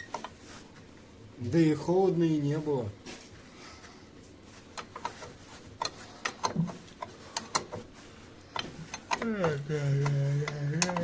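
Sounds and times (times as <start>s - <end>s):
metallic clicks of hand tools: 8.6s - 11.0s.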